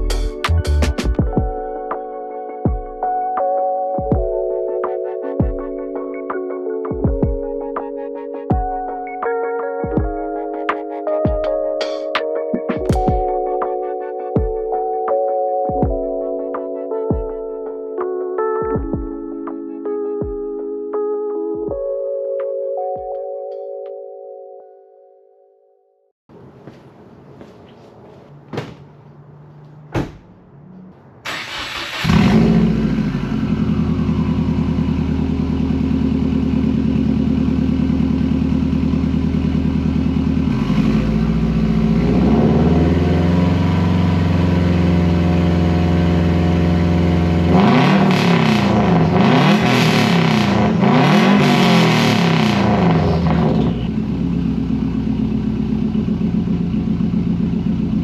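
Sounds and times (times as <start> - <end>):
car engine starting and idling: 29.4 - 58.0
engine revving: 29.7 - 57.8.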